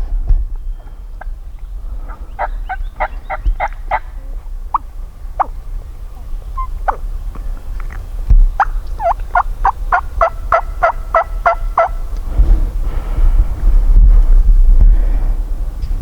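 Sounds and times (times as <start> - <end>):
low rumble: 0.0 - 16.0
turkey gobbling: 2.1 - 5.6, 6.2 - 7.1, 7.8 - 12.1.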